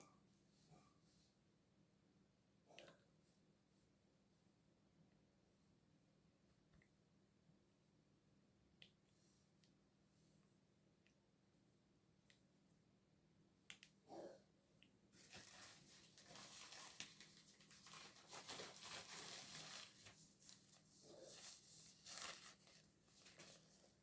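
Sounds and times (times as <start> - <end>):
soft clicks: 13.7 - 14.0
rustling and crinkling handling noise: 15.1 - 24.0.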